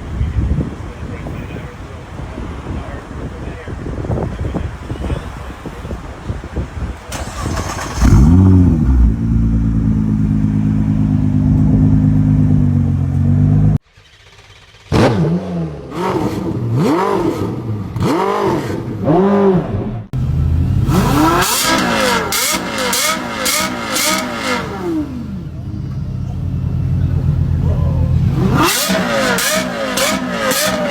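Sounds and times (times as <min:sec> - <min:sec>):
car engine revving: 0:07.1 - 0:30.9.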